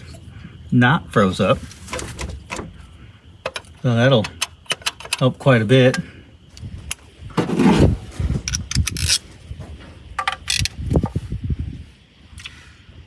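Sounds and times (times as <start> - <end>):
metal tools clinking and scraping: 3.4 - 5.3, 8.4 - 9.2, 10.2 - 10.8.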